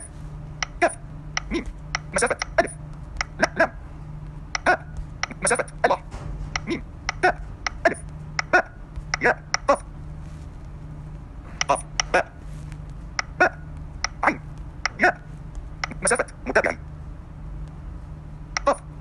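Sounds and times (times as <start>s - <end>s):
steady low hum: 0.0s - 19.0s
smartphone keyboard typing clicks: 4.5s - 5.7s, 11.6s - 12.2s, 14.8s - 16.3s.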